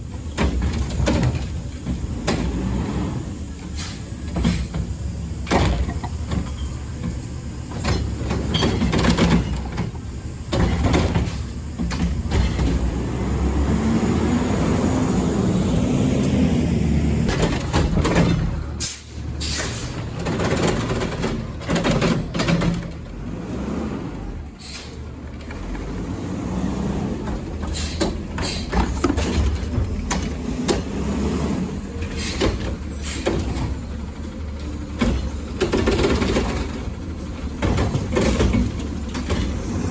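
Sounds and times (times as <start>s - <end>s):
garbage truck engine running: 0.0s - 39.9s
air brake hissing: 1.6s - 5.4s, 18.8s - 20.1s, 24.6s - 25.1s, 27.6s - 29.0s, 31.1s - 33.8s.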